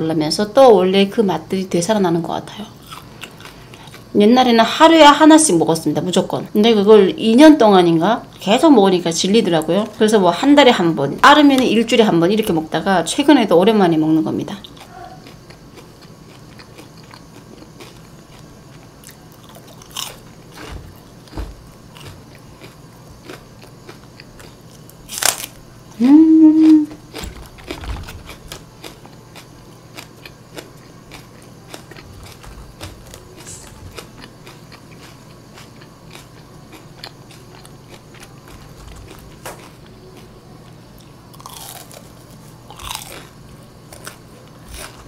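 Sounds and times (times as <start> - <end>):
crunching and chewing fried chicken: 2.5 - 4.2, 14.4 - 26.0, 26.6 - 45.0
person humming: 26.0 - 27.0.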